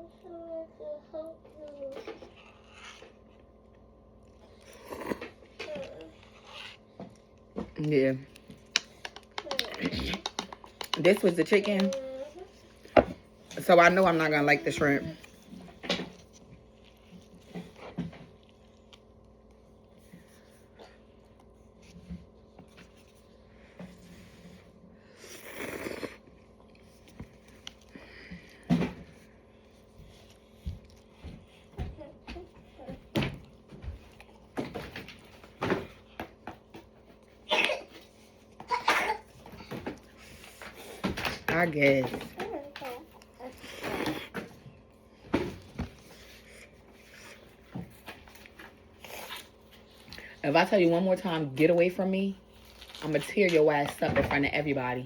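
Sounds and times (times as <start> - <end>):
slurping noodles: 25.1 - 26.3.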